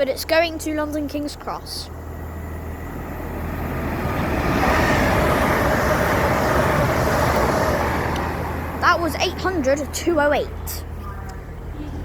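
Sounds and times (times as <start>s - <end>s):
steady train whine: 0.0s - 12.0s
train passing rushing noise: 1.4s - 11.7s.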